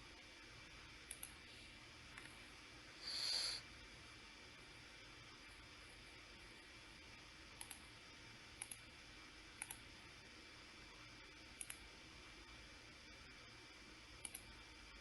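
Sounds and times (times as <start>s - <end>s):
faint steady hiss: 0.0s - 15.0s
computer mouse clicking: 1.0s - 1.4s, 7.6s - 7.9s, 8.6s - 8.9s, 9.6s - 9.9s, 11.6s - 11.9s, 14.2s - 14.5s.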